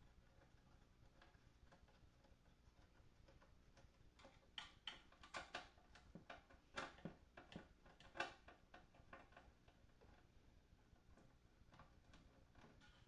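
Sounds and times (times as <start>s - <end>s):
small parts and tools clicking: 0.2s - 10.3s.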